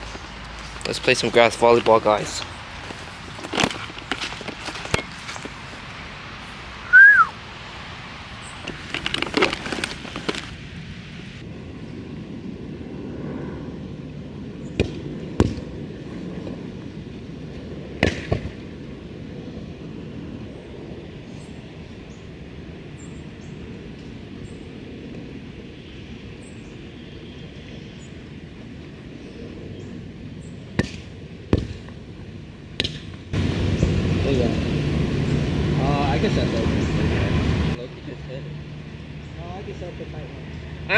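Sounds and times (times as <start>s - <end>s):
steady outdoor background: 0.0s - 40.9s
short high falling chirp: 6.9s - 7.3s.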